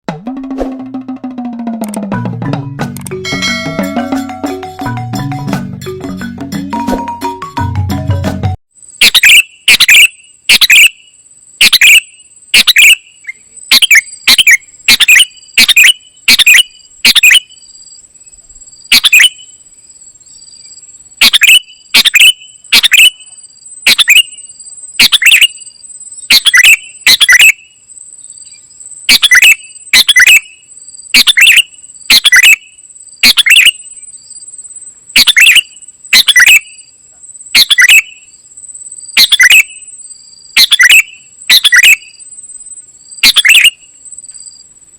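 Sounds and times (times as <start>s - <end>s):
bulbul calling: 9.0s - 17.6s, 18.9s - 19.5s, 21.2s - 25.7s, 26.3s - 27.8s, 28.4s - 30.6s, 31.2s - 34.0s, 35.2s - 36.9s, 37.6s - 38.3s, 39.2s - 39.9s, 40.6s - 42.2s, 43.2s - 44.0s.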